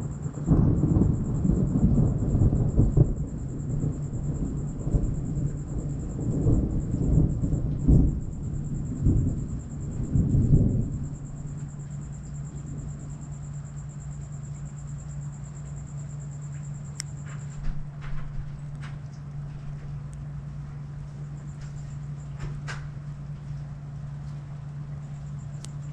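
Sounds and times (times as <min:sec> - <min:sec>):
thunder rumbling: 0:00.0 - 0:15.3
steady low hum: 0:00.0 - 0:25.9.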